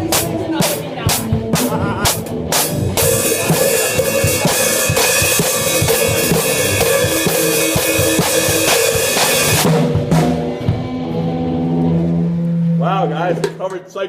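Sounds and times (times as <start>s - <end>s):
drum kit kick and snare hits: 0.0s - 11.0s
cymbals crashing: 2.6s - 11.2s
steady pitched instrument note: 11.0s - 13.5s.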